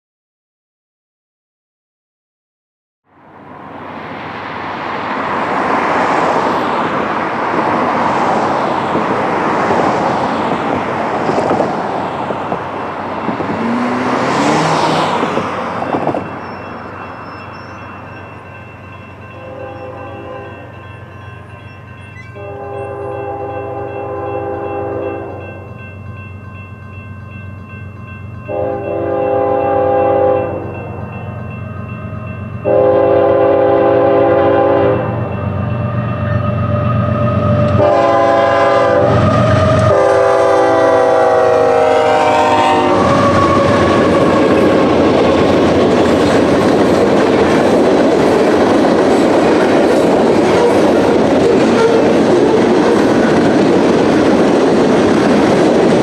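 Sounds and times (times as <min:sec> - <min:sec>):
train wheels rumbling and clattering: 0:05.5 - 0:22.3, 0:35.1 - 0:56.0
locomotive air horn blasts: 0:19.3 - 0:20.7, 0:22.3 - 0:25.4, 0:28.5 - 0:30.7, 0:32.6 - 0:35.2, 0:37.7 - 0:44.6, 0:51.4 - 0:52.6.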